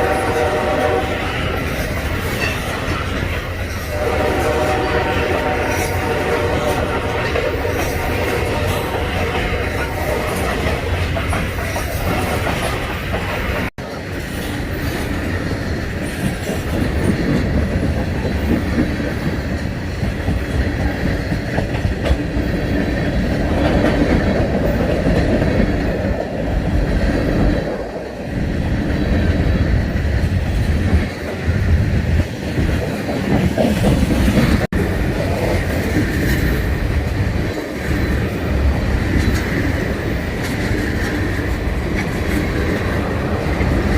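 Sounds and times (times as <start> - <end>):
train wheels clattering on rails: 0.0 - 43.9.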